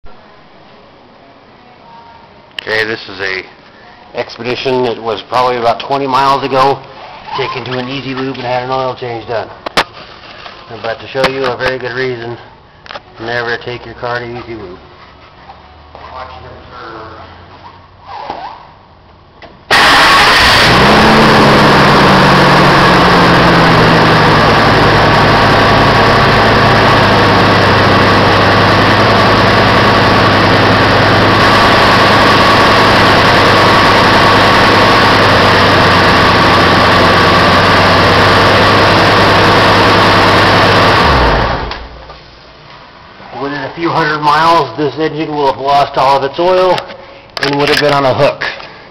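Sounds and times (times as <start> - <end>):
car engine starting and idling: 19.7 - 42.1.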